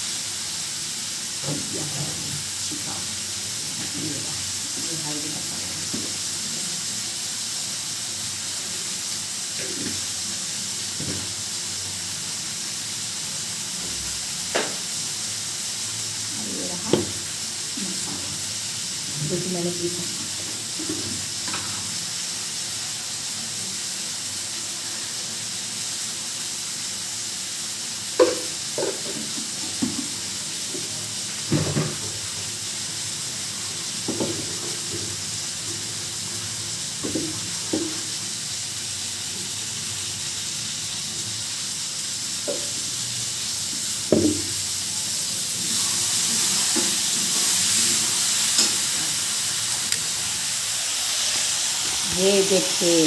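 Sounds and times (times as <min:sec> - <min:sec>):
curry sizzling in a pan: 0:00.0 - 0:53.0
spoon knocking against pan: 0:28.2 - 0:30.1.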